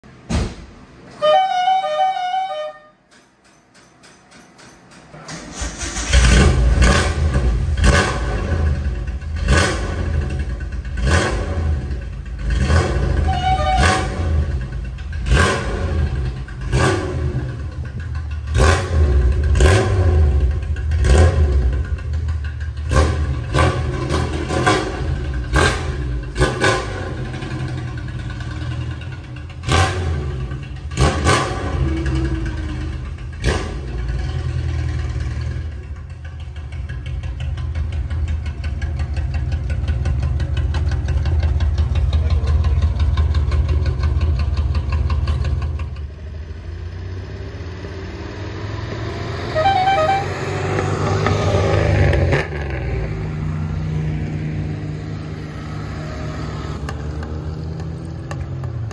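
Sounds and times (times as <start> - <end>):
car engine revving: 5.3 - 36.0, 36.6 - 58.9
exhaust barking on throttle blips: 11.0 - 17.8, 49.4 - 51.3.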